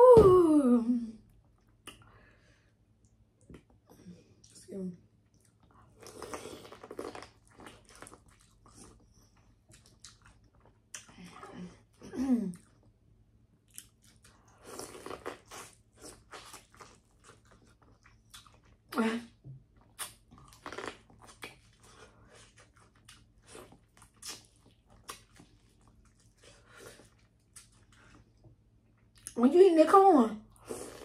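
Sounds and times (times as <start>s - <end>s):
wet mouth clicks and smacks: 1.6s - 2.1s, 19.8s - 21.6s, 24.1s - 25.5s
chewing and crunching: 5.2s - 11.4s, 13.6s - 18.9s, 19.6s - 29.4s.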